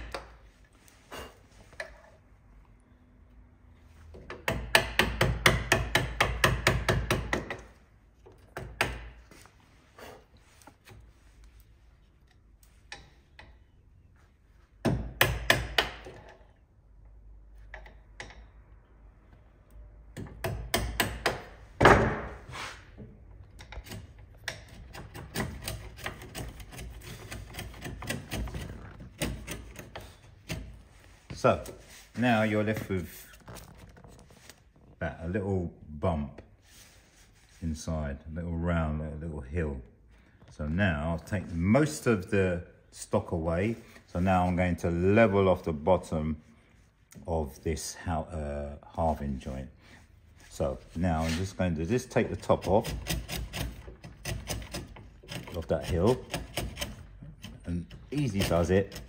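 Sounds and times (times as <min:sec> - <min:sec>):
chisel tapping and chopping wood: 0:04.2 - 0:09.2, 0:14.8 - 0:16.3, 0:20.1 - 0:22.4, 0:52.6 - 0:59.0
wood fibres splitting: 0:23.6 - 0:30.8, 0:52.1 - 0:59.0.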